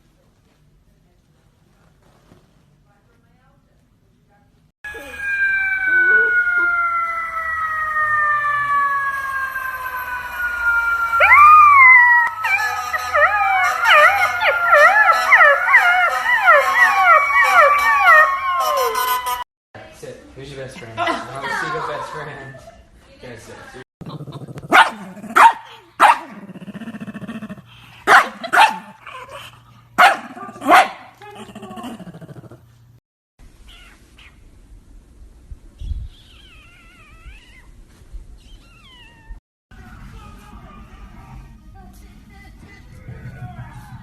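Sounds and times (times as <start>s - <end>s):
siren wailing: 4.8s - 19.4s
puppy howling: 4.9s - 19.4s
puppy barking: 24.7s - 26.4s, 28.1s - 29.4s, 30.0s - 31.2s
puppy growling: 26.2s - 27.8s, 28.9s - 32.8s.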